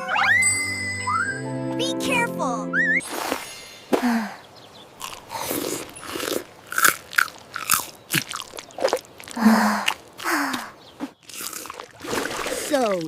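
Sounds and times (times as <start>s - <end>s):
crunchy biting and chewing: 5.0s - 12.5s.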